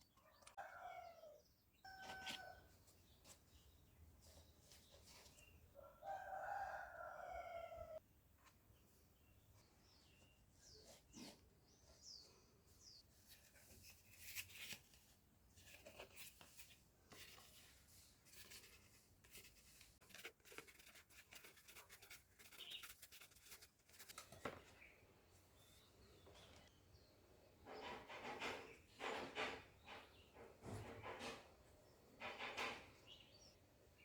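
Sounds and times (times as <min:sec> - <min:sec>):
cardboard scratching and rubbing: 0:13.2 - 0:24.4.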